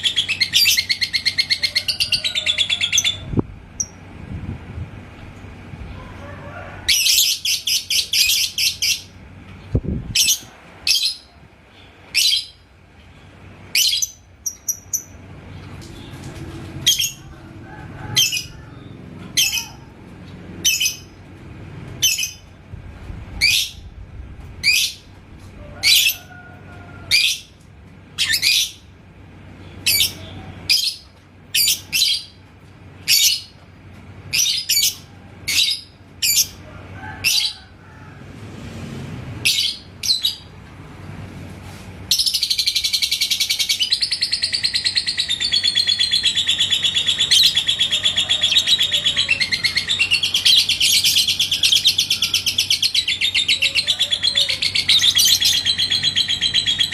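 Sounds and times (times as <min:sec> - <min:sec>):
bird chattering trill: 0:42.1 - 0:56.9
bird chirping: 0:42.1 - 0:56.9.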